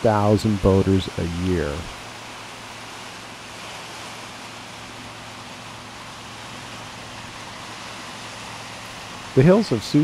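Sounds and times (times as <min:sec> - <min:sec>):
rushing outdoor noise: 0:00.0 - 0:10.0.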